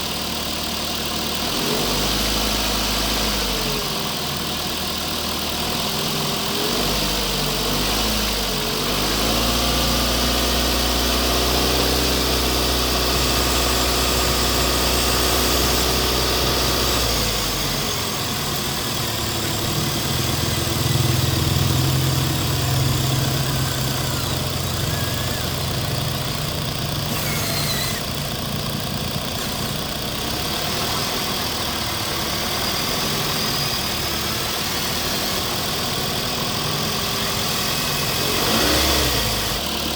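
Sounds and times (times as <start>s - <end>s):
toy machine motor hum: 23.9s - 28.4s
thin motor whine: 27.0s - 28.3s.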